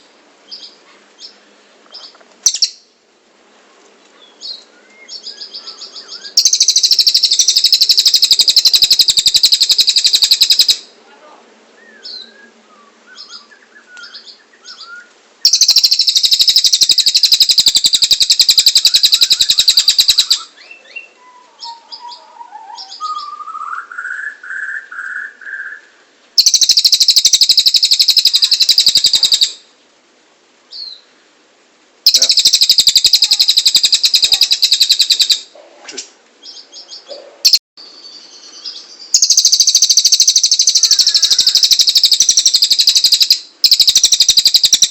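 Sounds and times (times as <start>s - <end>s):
bird chirps: 0.0s - 2.9s, 4.2s - 10.9s, 11.8s - 29.6s, 32.1s - 35.6s, 36.4s - 44.9s
bird singing high trills: 2.4s - 2.9s, 4.4s - 10.9s, 11.8s - 29.6s, 32.1s - 35.5s, 36.5s - 44.9s.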